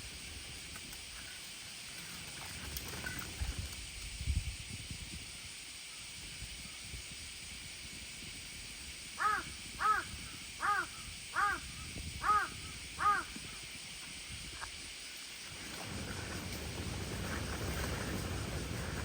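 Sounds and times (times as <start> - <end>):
steady outdoor hiss: 0.0 - 19.0
crow cawing: 9.2 - 13.4.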